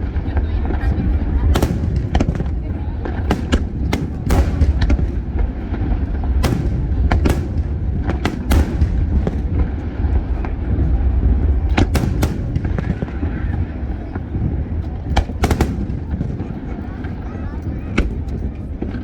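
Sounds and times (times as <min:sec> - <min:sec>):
steady low rumble: 0:00.0 - 0:19.0
aerial fireworks bangs: 0:01.6 - 0:09.7, 0:11.8 - 0:13.5, 0:15.2 - 0:16.5.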